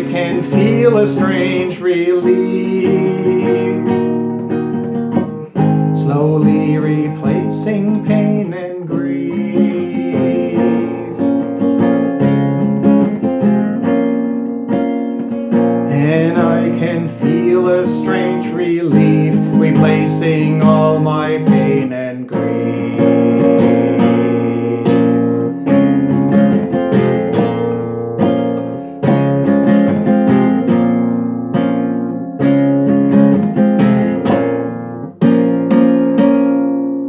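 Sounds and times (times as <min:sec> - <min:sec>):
acoustic guitar chords ringing: 0:00.0 - 0:37.0.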